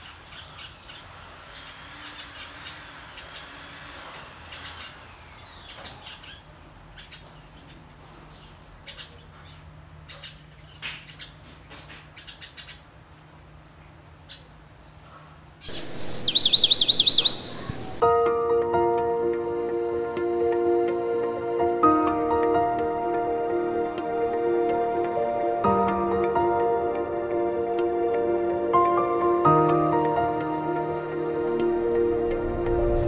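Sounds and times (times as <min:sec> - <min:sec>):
birds chirping and calling: 0:04.5 - 0:11.4, 0:12.1 - 0:12.9, 0:15.6 - 0:18.0.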